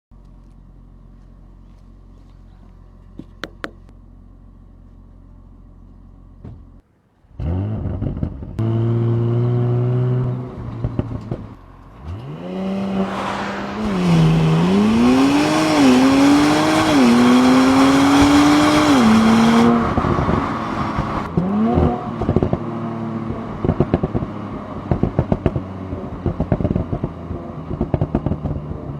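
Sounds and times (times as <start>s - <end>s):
car engine revving and accelerating: 7.4s - 28.9s.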